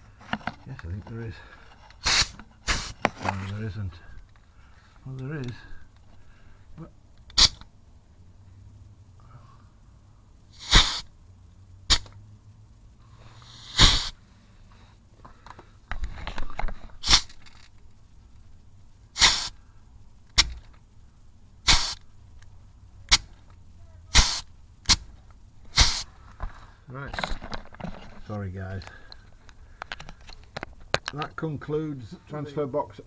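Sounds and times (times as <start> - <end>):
grease gun air hiss bursts: 2.0 - 3.1, 7.3 - 7.6, 10.5 - 11.2, 13.0 - 14.3, 17.0 - 17.6, 19.1 - 19.7, 21.6 - 22.2, 24.1 - 26.3.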